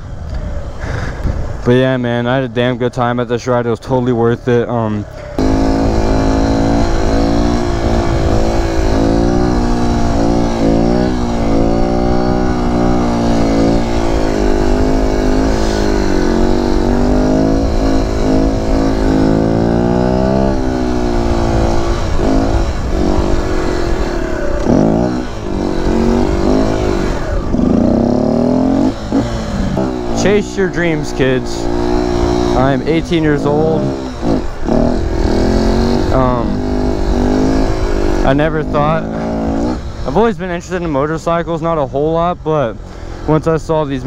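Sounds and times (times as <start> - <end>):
motorcycle engine revving: 4.8 - 44.0
wind on microphone: 5.4 - 40.3.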